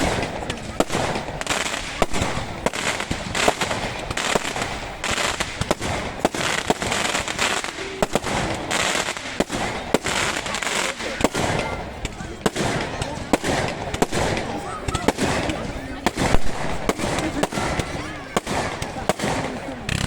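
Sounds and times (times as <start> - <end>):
fireworks bangs and cracks: 0.0 - 20.0
fireworks crackle: 0.0 - 20.0.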